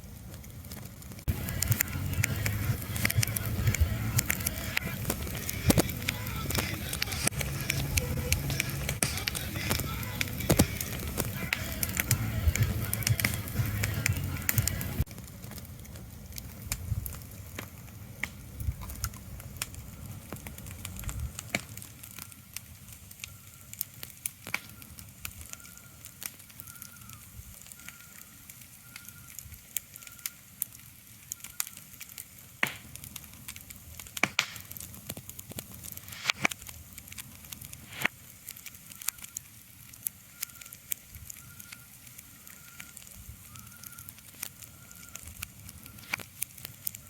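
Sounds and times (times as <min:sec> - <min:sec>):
sharp crackles and clicks: 0:00.0 - 0:47.0
low rumbling: 0:00.6 - 0:21.5.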